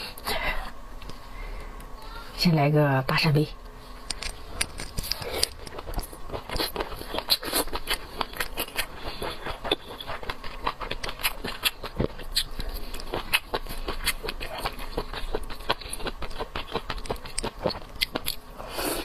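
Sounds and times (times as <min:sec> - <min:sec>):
wet chewing: 0:04.0 - 0:19.0.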